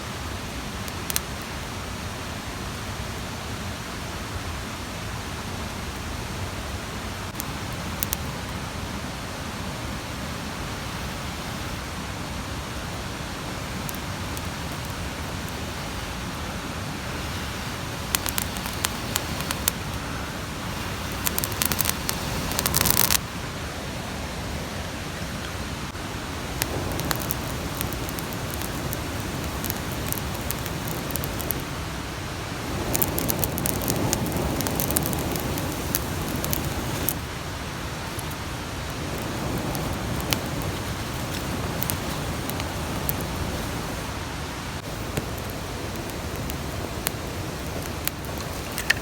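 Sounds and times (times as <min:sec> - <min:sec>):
mountain stream rushing: 0:00.0 - 0:49.0
sharp clicks and snaps: 0:00.9 - 0:01.3, 0:18.1 - 0:19.8, 0:21.1 - 0:23.2, 0:26.6 - 0:31.7, 0:32.9 - 0:37.2, 0:45.1 - 0:49.0.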